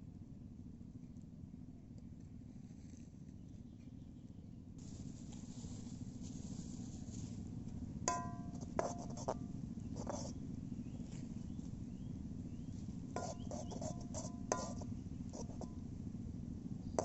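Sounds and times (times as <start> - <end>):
low rumbling hiss: 4.2 - 17.0
metal cookware clinking: 8.1 - 8.5.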